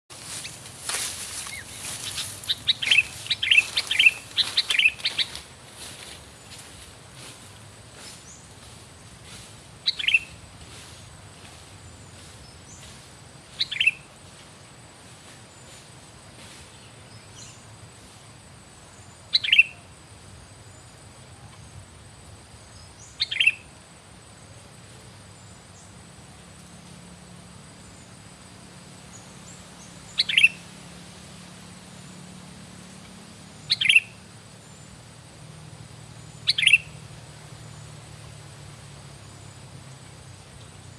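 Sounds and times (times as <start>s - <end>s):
bird calling: 0.1s - 7.4s, 9.8s - 10.4s, 12.2s - 14.1s, 19.3s - 19.9s, 23.0s - 23.7s, 29.8s - 30.7s, 33.0s - 34.8s, 36.2s - 37.1s
faint steady hiss: 0.1s - 40.9s.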